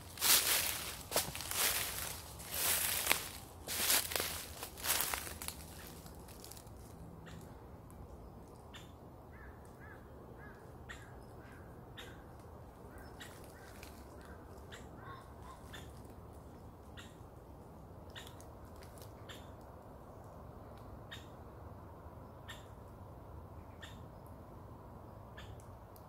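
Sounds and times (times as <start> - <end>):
faint bird chirps and calls: 8.2 - 20.3, 21.0 - 21.4, 22.2 - 22.9, 23.5 - 24.4, 25.1 - 25.8.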